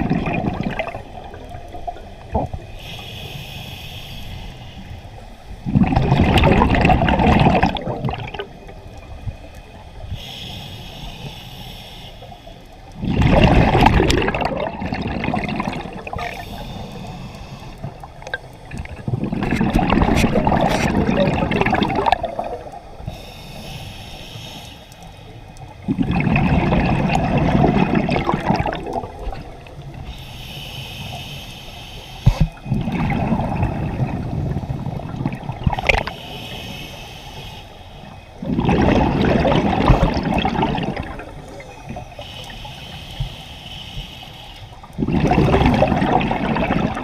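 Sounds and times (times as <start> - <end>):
gurgling exhaled bubbles: 0.0 - 2.8, 5.6 - 8.8, 13.0 - 16.6, 17.7 - 23.0, 25.8 - 30.0, 32.4 - 36.2, 38.4 - 42.2, 44.9 - 47.0
regulator inhale hiss: 2.6 - 5.6, 8.8 - 13.0, 16.0 - 18.3, 22.9 - 25.8, 29.6 - 32.8, 35.7 - 38.4, 41.3 - 45.0.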